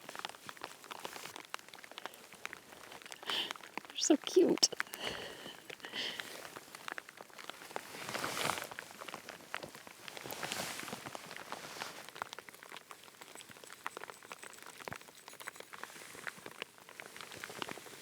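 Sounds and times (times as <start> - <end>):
rustling: 5.5 - 18.0.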